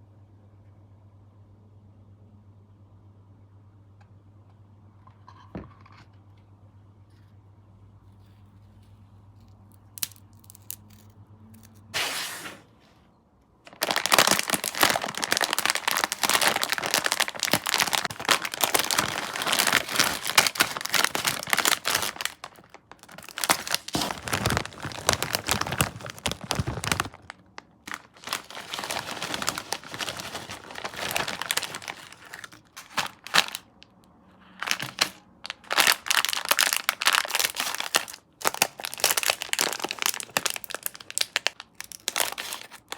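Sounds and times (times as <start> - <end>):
plastic packaging crinkling: 9.4 - 12.1, 13.6 - 33.9, 34.5 - 42.9.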